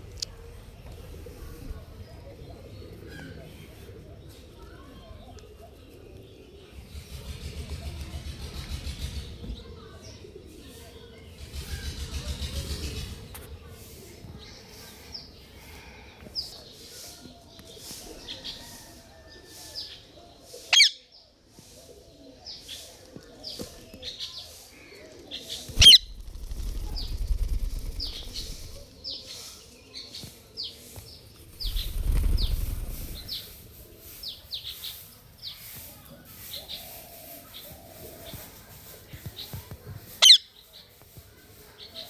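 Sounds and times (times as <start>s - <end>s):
parrot chirping: 25.8s - 28.8s
shrill whistled calls: 25.8s - 28.8s
low rumbling noise: 25.8s - 28.9s, 31.5s - 33.6s.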